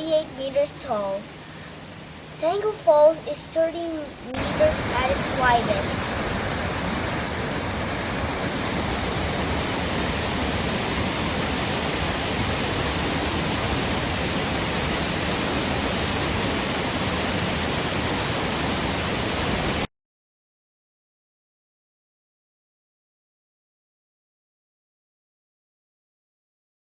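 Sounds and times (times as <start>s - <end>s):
waterfall roaring: 0.0s - 19.9s.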